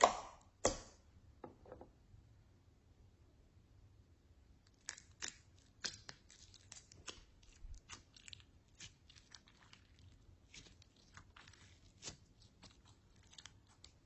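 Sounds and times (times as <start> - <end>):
slime squished by hand: 4.8 - 14.0.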